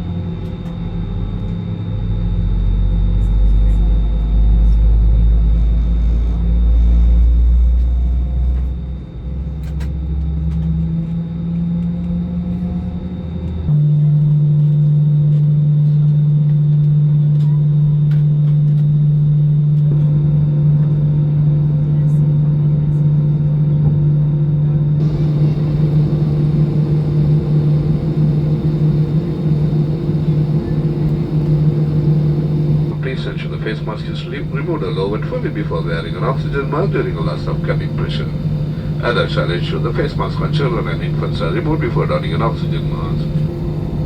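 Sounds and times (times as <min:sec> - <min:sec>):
aircraft cabin rumble: 0:25.0 - 0:44.0
steady cabin hum: 0:25.0 - 0:44.0.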